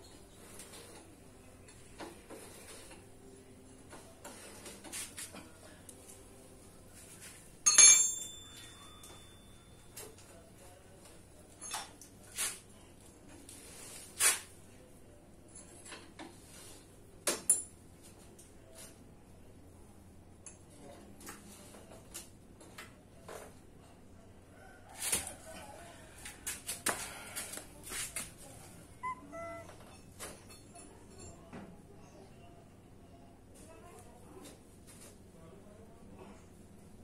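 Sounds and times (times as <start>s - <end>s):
metal tools clinking: 7.7s - 9.5s.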